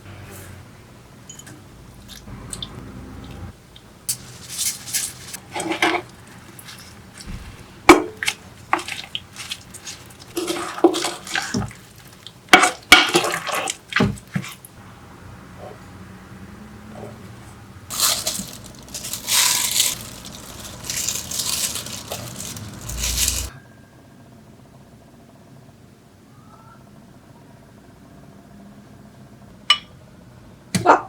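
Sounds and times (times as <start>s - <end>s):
utensils clinking and scraping dishes: 4.1s - 14.6s, 17.9s - 23.5s.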